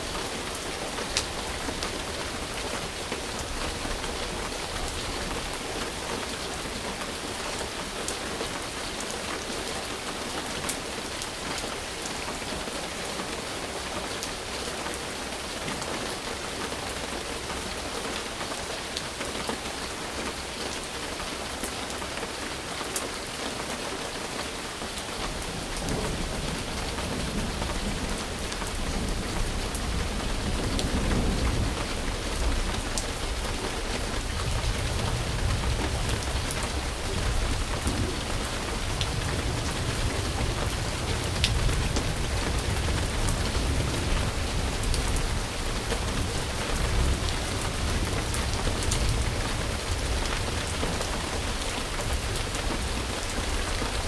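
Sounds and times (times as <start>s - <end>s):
rain falling: 0.0s - 54.0s
low rumble of thunder: 25.3s - 54.0s.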